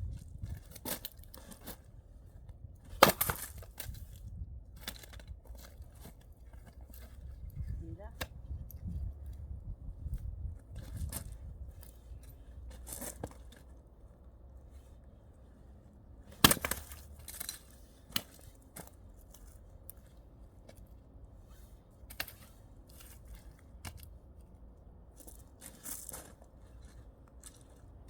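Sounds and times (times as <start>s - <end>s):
axe striking log: 2.9s - 3.8s, 16.4s - 17.1s
wood cracking: 2.9s - 3.8s.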